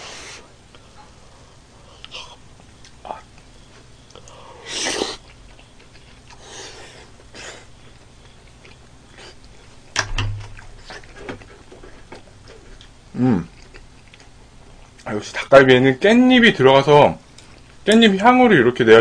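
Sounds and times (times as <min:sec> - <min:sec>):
person chewing food: 0:02.0 - 0:09.7, 0:10.4 - 0:15.1.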